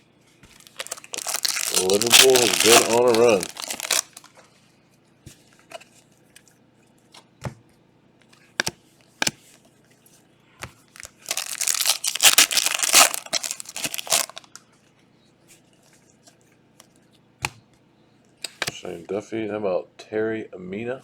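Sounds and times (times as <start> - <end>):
wrapper crinkling and tearing: 0.5 - 4.3, 11.0 - 14.6.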